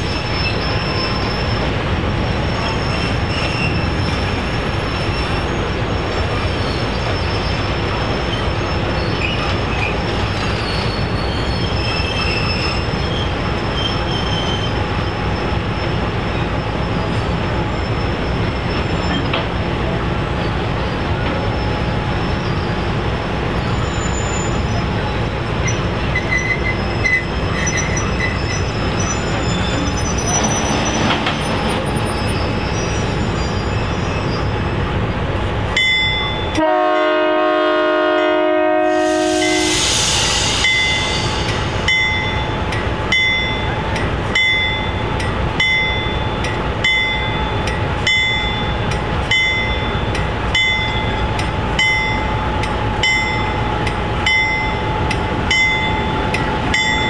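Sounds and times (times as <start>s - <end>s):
high wheel squeals: 0.0s - 19.7s, 23.6s - 34.8s, 44.4s - 57.0s
train rolling by with rumble: 0.0s - 57.0s
locomotive air horn blast: 36.6s - 39.8s.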